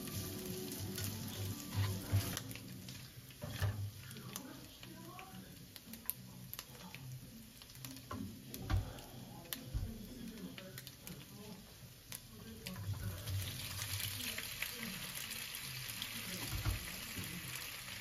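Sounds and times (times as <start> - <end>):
spatula stirring: 0.0 - 9.6
meat sizzling in a frying pan: 0.0 - 18.0.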